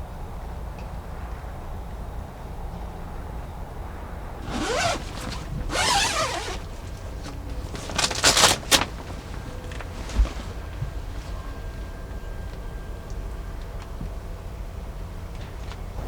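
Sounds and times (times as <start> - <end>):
zipper pulled: 4.4 - 10.2.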